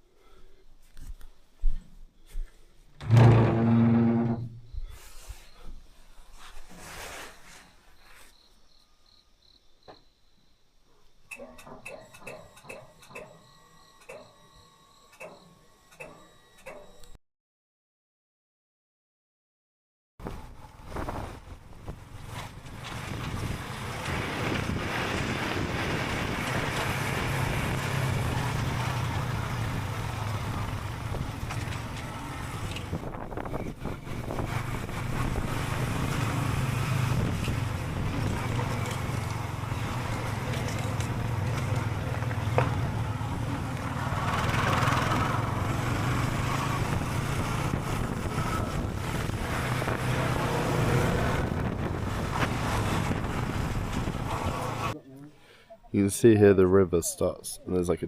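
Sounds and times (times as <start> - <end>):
wind noise on microphone: 20.2 - 31.7, 32.5 - 39.0, 46.4 - 54.9
motorbike engine running: 33.9 - 54.9.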